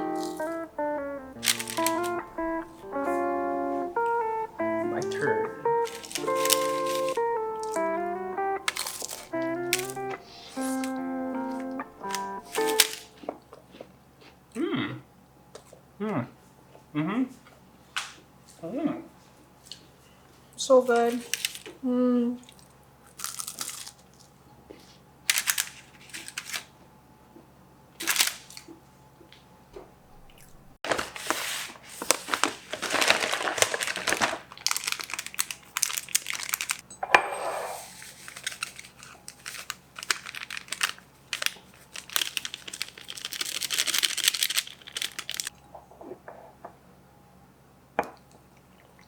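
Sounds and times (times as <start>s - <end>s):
crinkling and crumpling: 0.0s - 13.4s, 20.9s - 21.8s, 22.4s - 26.7s, 30.4s - 36.8s, 37.9s - 45.6s.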